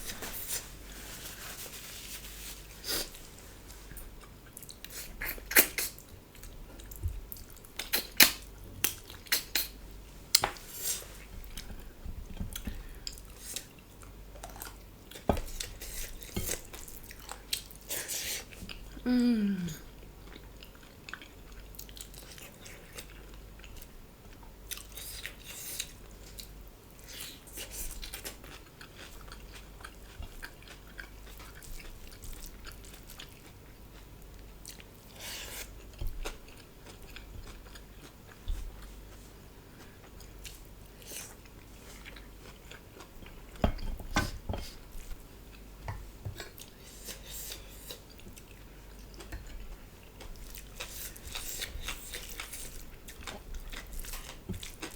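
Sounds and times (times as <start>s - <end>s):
person chewing food: 2.2s - 54.9s.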